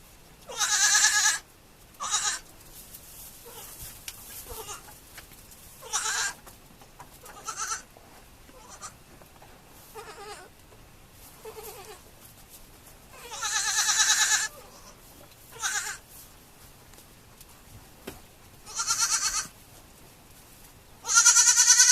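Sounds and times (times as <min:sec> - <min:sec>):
goat kids bleating: 0:00.5 - 0:02.5, 0:03.4 - 0:05.0, 0:05.8 - 0:06.5, 0:07.2 - 0:07.9, 0:08.5 - 0:09.0, 0:09.9 - 0:10.6, 0:11.4 - 0:12.1, 0:13.1 - 0:16.1, 0:18.6 - 0:19.6, 0:21.0 - 0:21.9.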